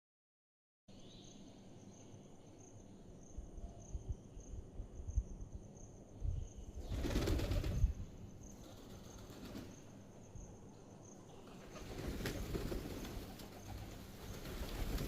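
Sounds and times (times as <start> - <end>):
pigeons flapping wings: 6.8 - 8.0, 8.6 - 9.8, 11.4 - 15.0.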